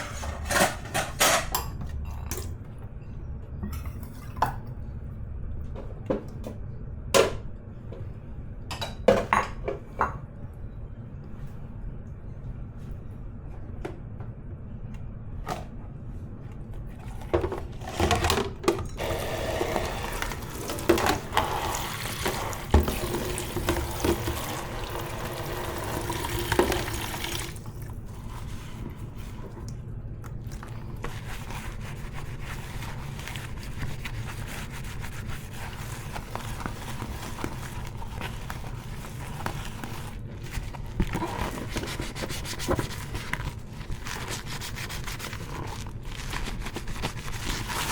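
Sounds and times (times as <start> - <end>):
dishes knocking and clinking: 8.7 - 10.3
scrubbing dishes: 17.0 - 29.6
tap running into sink: 18.7 - 27.7.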